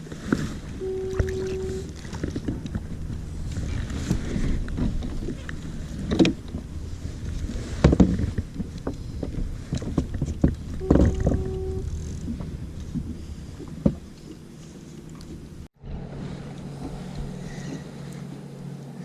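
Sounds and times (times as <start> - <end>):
wind noise: 0.0 - 17.9
water: 0.0 - 19.0
short steady tone: 0.6 - 4.6, 10.6 - 14.4.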